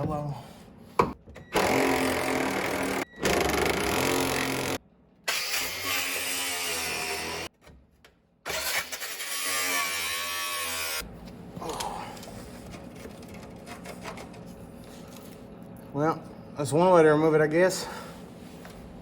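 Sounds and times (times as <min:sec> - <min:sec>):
angle grinder cutting metal: 0:03.7 - 0:07.5, 0:08.5 - 0:11.0.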